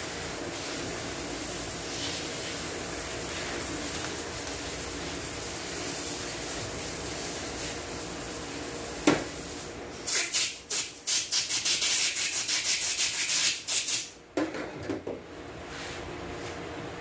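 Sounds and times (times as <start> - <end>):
rapid rubbing strokes: 0.6 - 8.9, 10.1 - 14.1.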